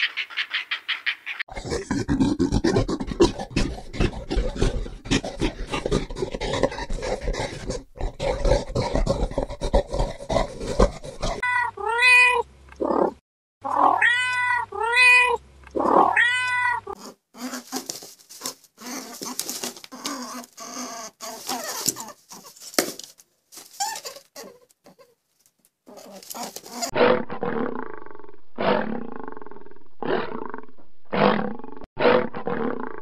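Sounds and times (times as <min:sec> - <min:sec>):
gorilla chewing food: 0:01.5 - 0:11.4
cat meowing: 0:11.4 - 0:12.4, 0:13.8 - 0:15.4, 0:16.0 - 0:17.0.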